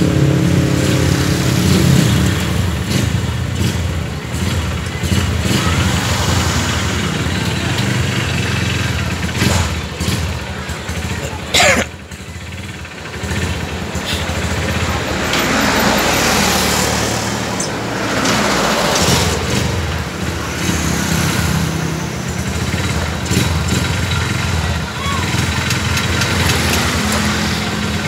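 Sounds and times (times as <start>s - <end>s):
motorcycle engine idling: 0.0s - 28.0s
vehicle passing: 13.2s - 23.1s.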